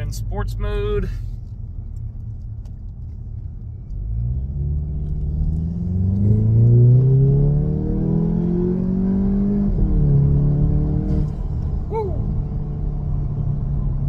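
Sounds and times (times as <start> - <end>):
car engine accelerating hard: 3.9 - 14.0.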